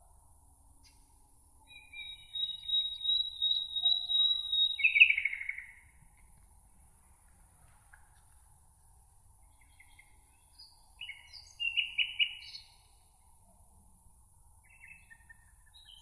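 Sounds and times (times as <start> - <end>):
songbird trilling: 1.7 - 5.7.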